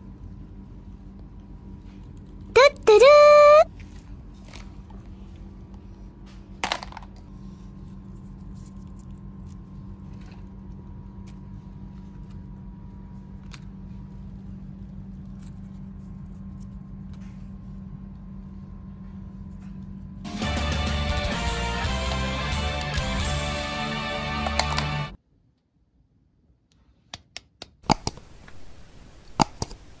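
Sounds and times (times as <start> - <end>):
steady low hum: 3.7 - 25.2.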